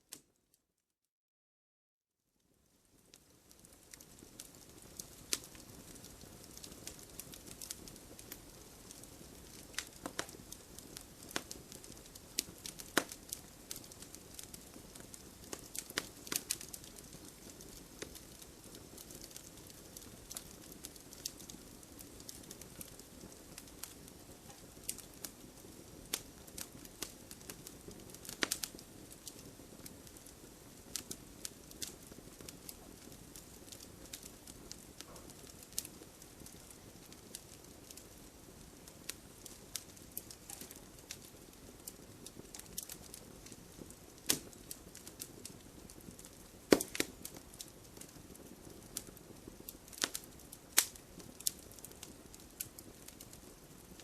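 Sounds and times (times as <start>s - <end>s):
wood fire crackling and popping: 2.6s - 54.0s.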